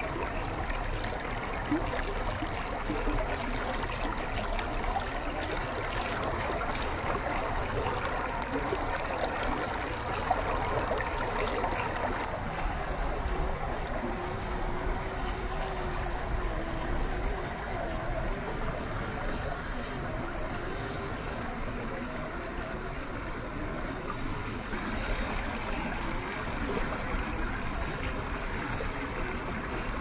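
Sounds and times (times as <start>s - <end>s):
faint steady whine: 0.0s - 30.0s
stream water running: 0.0s - 30.0s.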